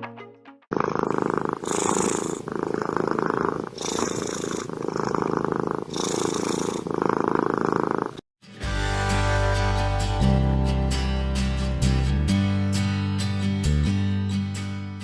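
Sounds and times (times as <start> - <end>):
cat purring: 0.7 - 8.2.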